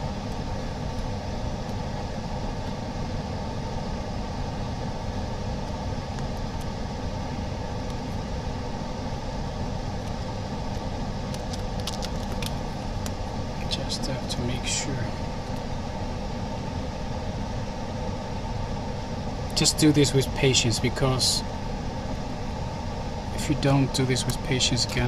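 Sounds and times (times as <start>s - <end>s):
workshop equipment humming: 0.0s - 25.0s.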